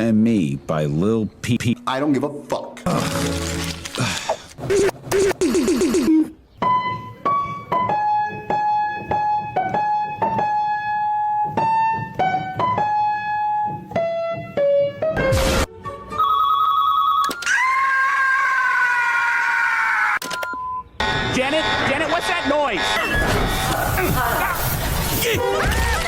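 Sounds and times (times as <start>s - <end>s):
electric piano melody: 6.6s - 15.2s.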